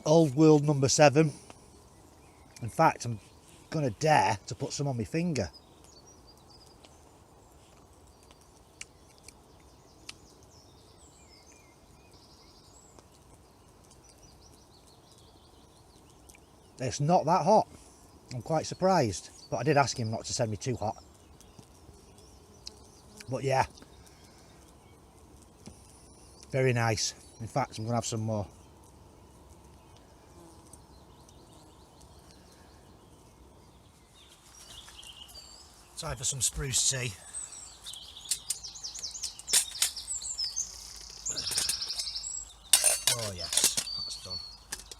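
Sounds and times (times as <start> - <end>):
birds chirping: 0.0 - 44.9
outdoor ambience hum: 0.0 - 44.9
sharp clicks: 37.9 - 40.1.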